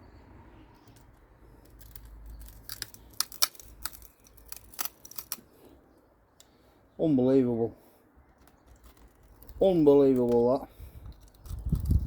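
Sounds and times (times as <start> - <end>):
plastic and metal clicks and cracks: 0.8 - 5.5, 8.4 - 12.0.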